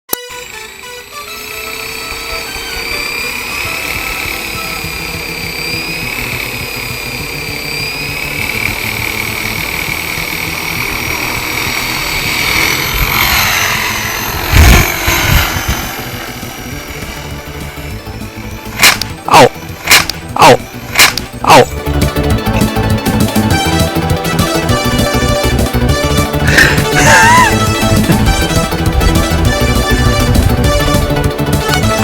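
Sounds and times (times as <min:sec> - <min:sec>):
helicopter turbine and rotor: 0:00.1 - 0:32.0.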